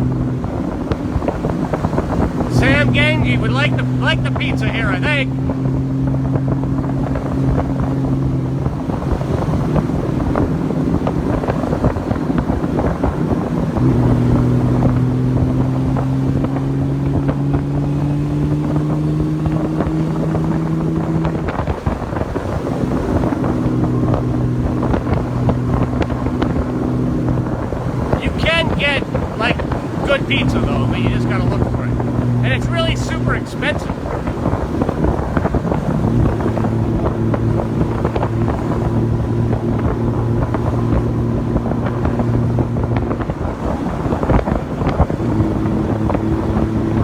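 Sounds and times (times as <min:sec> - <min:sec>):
wind noise on microphone: 0:00.0 - 0:30.2, 0:33.8 - 0:47.0
motorcycle engine running: 0:05.2 - 0:32.7.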